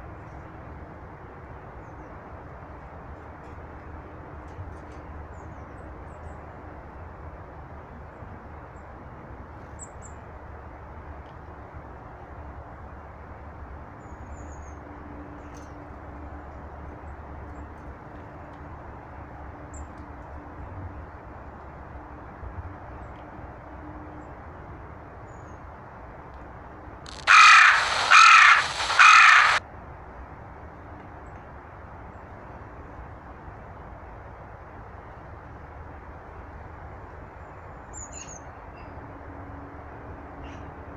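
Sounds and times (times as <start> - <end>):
crow cawing: 27.1 - 29.6
small birds calling: 27.1 - 29.6.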